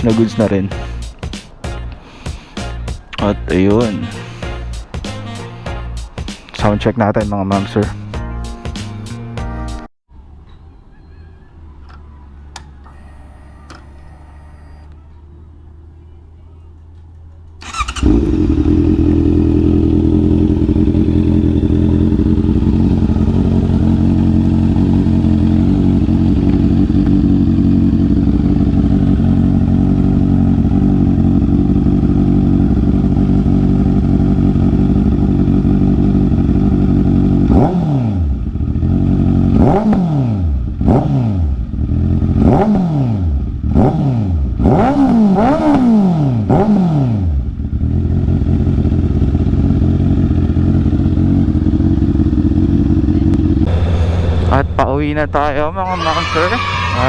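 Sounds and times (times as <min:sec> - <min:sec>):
motorcycle engine revving: 0:00.0 - 0:01.7, 0:17.1 - 0:55.4
motorcycle engine idling: 0:16.6 - 0:37.6, 0:38.3 - 0:39.8, 0:41.6 - 0:42.5, 0:47.4 - 0:55.3.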